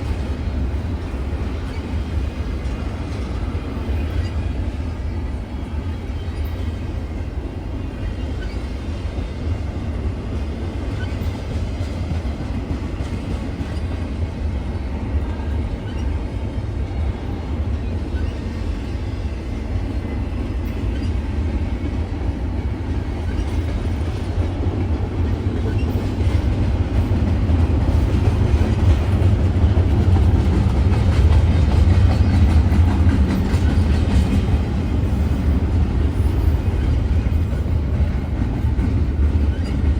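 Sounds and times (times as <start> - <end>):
freight train rumbling past: 0.0 - 39.9
wheels clacking on rails: 0.0 - 39.9.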